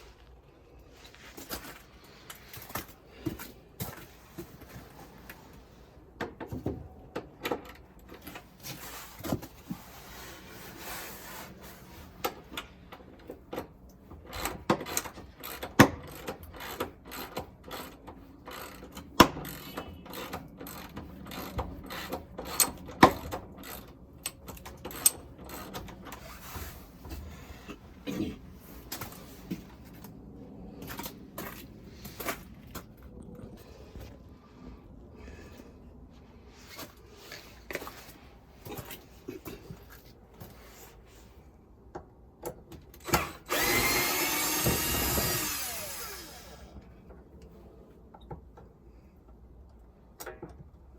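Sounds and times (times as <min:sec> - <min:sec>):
hand tools clicking and knocking: 0:12.2 - 0:26.4.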